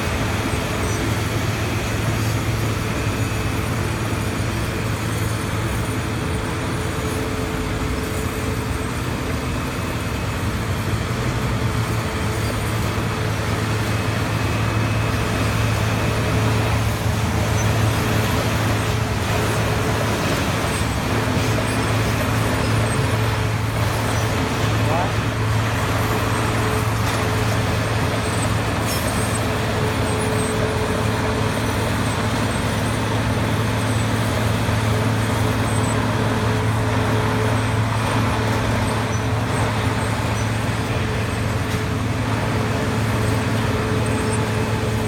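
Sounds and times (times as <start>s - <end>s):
heavy diesel machine drone: 0.0s - 45.0s.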